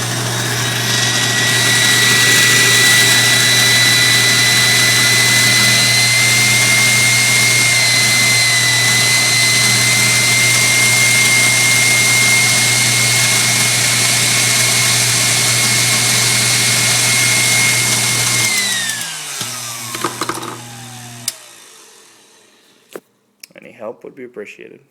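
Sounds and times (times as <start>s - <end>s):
grinding noise: 0.0s - 12.1s, 19.6s - 21.2s
stand mixer motor whining: 0.0s - 23.0s.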